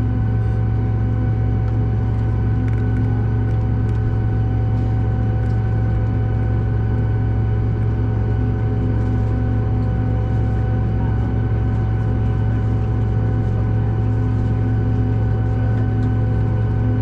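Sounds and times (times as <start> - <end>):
aircraft cabin drone: 0.0 - 17.0.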